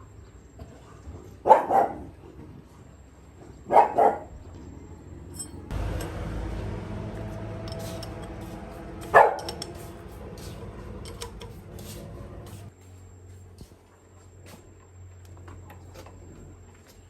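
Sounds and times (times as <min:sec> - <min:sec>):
dog barking: 0:01.4 - 0:02.2, 0:03.6 - 0:04.4, 0:09.0 - 0:09.6
low hum: 0:04.6 - 0:12.7.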